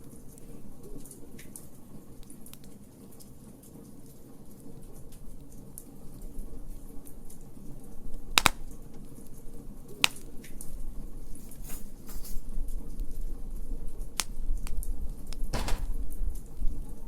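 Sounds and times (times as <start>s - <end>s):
wood fire crackling: 0.0s - 17.0s
sharp fire pops: 8.3s - 8.8s, 10.0s - 10.3s, 14.2s - 16.5s.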